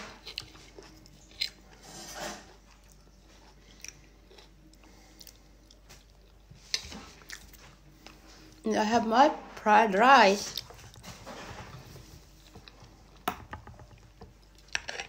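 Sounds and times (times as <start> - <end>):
person chewing food: 0.0 - 1.8, 2.5 - 8.6, 10.5 - 13.3, 13.9 - 15.0.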